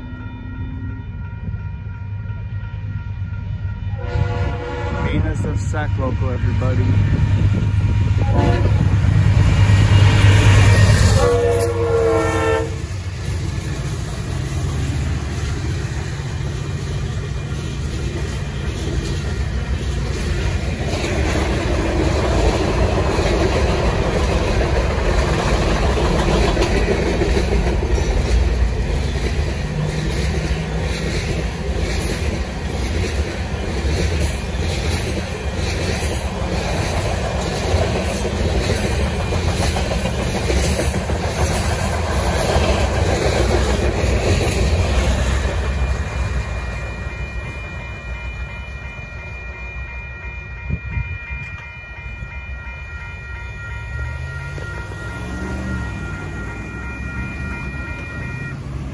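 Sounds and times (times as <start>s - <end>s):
crossing bell ringing: 0.0s - 18.7s, 44.4s - 58.9s
freight train rumbling past: 0.0s - 58.9s
train wheel clatter: 6.7s - 47.5s.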